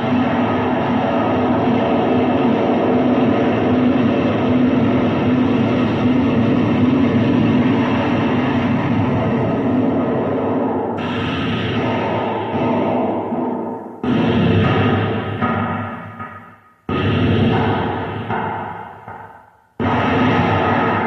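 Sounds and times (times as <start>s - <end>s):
electronic rumbling drone: 0.0s - 16.3s, 19.8s - 21.0s.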